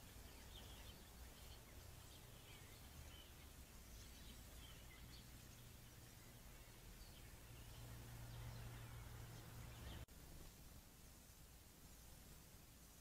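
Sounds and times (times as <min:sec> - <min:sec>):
bird chirps: 0:00.0 - 0:10.1
steady hiss and hum: 0:00.0 - 0:13.0.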